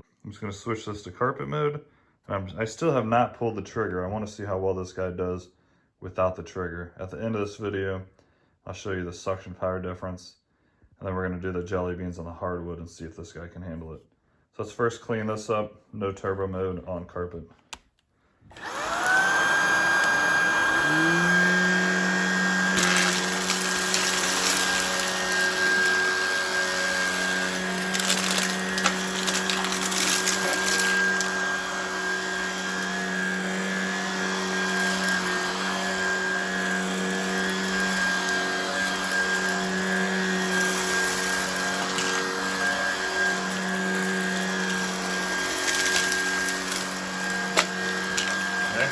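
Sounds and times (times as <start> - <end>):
stick vacuum motor whine: 18.5 - 48.9
debris clicking and rattling: 22.8 - 26.0, 27.1 - 31.4, 45.5 - 48.9.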